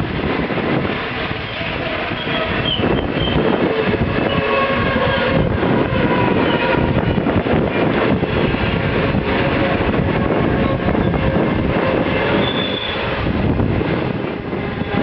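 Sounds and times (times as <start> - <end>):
train wagons rumbling past: 0.0 - 15.0
faint wheel squeals: 12.3 - 13.0.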